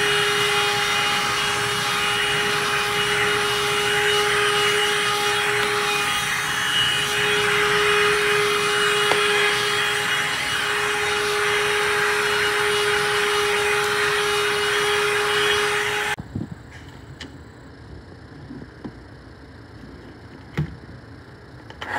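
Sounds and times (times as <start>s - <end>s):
handheld vacuum running: 0.0s - 16.2s.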